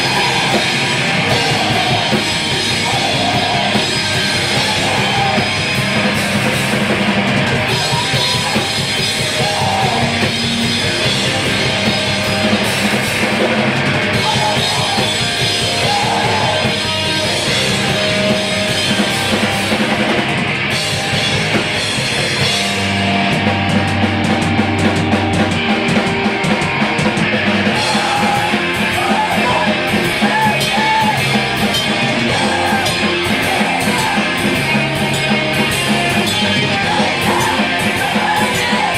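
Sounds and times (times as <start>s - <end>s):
hardcore band playing live: 0.0s - 38.9s.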